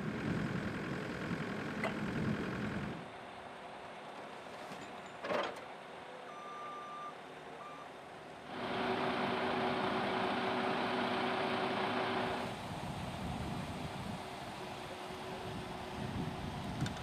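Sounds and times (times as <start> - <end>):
truck engine running: 0.0 - 6.1, 7.3 - 17.0
clunk: 4.5 - 5.7.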